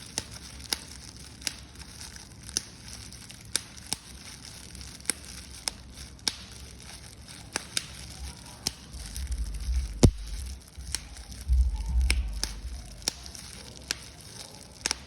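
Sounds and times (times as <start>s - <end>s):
paper crumpling: 0.0s - 15.0s
handling rumble on microphone: 9.1s - 13.0s.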